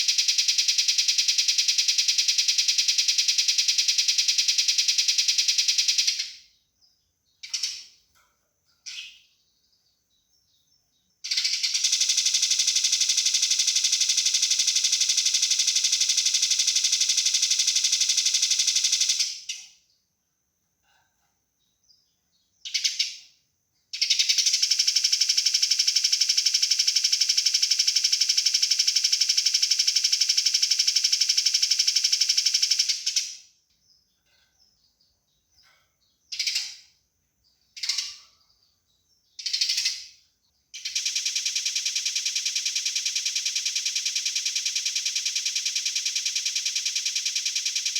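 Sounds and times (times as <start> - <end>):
rapid harsh bird chatter: 0.0 - 19.9, 24.0 - 27.7, 33.9 - 47.9
sparrow chirps: 0.0 - 20.0, 21.6 - 25.2, 32.8 - 47.9.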